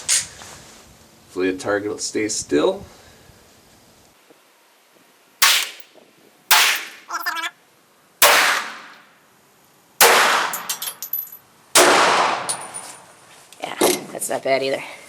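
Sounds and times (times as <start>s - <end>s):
pistol shots: 5.4s - 5.8s, 6.5s - 7.0s, 8.2s - 9.0s, 10.0s - 10.8s, 11.8s - 12.7s
metallic clink: 5.4s - 5.9s, 10.5s - 11.4s.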